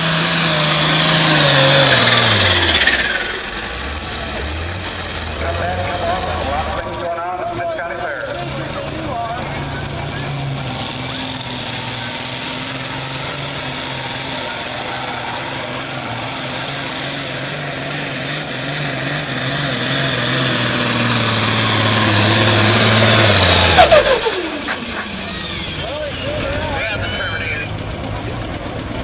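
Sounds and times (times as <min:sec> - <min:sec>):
diesel tractor engine whining: 0:00.0 - 0:29.0.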